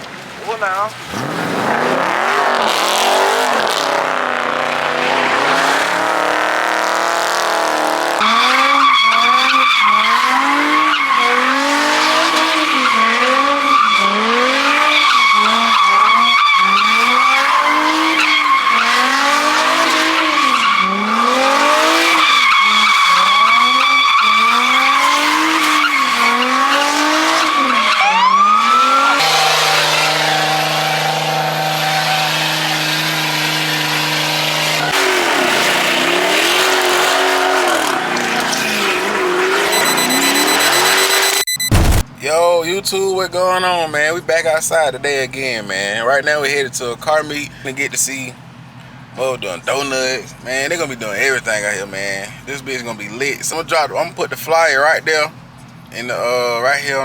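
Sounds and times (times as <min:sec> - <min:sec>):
car engine revving: 0:01.0 - 0:27.8.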